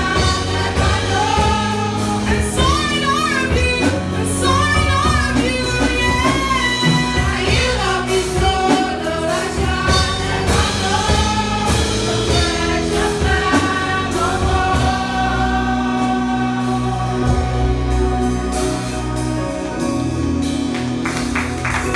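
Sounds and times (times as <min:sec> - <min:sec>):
group singing gospel carol: 0:00.0 - 0:21.9
instrumental backing with beat: 0:00.0 - 0:21.9.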